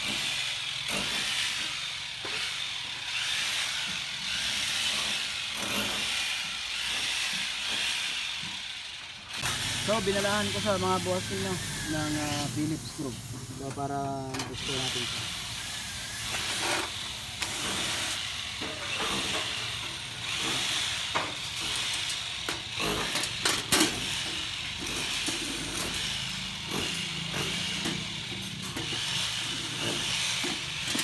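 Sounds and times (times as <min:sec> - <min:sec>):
steady hiss: 0:11.4 - 0:14.6.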